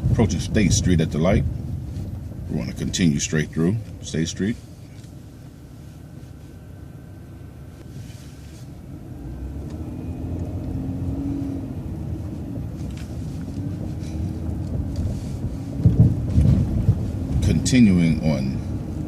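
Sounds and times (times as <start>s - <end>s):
bus engine rumble: 0.0s - 19.0s
low drone rising in pitch: 8.8s - 17.4s.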